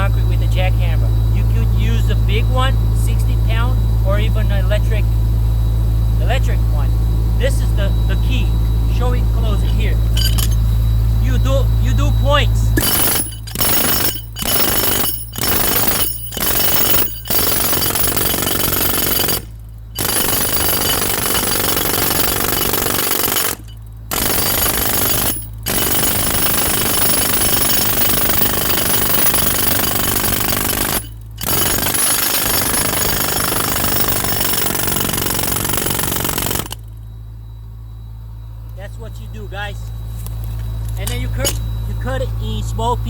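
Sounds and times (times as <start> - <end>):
jackhammer breaking concrete: 10.2 - 10.6, 12.8 - 36.8.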